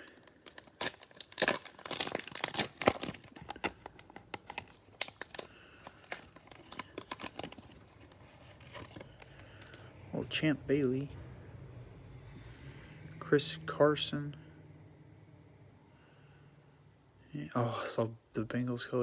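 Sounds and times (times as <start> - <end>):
cellophane wrapper crinkling: 0.0 - 10.0.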